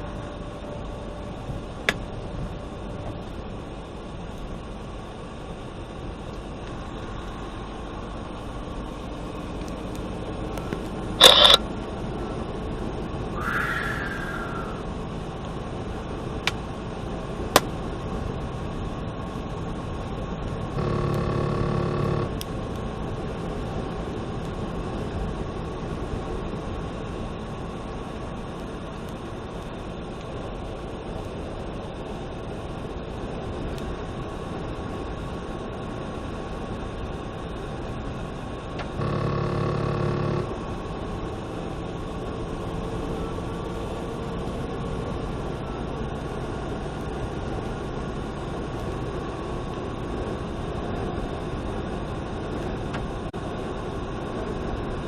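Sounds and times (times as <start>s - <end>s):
road noise inside car: 0.0s - 55.0s
sharp clicks: 10.7s - 11.6s
horn-like tone: 20.8s - 22.3s, 39.0s - 40.5s.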